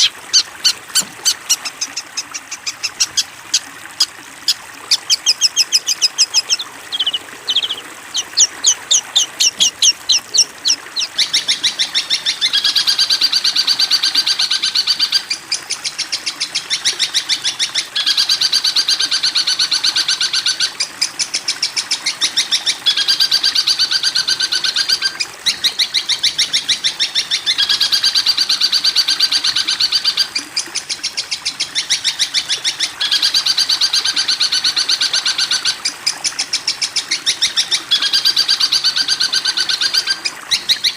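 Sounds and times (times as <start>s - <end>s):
songbird chattering trills: 0.0s - 17.3s.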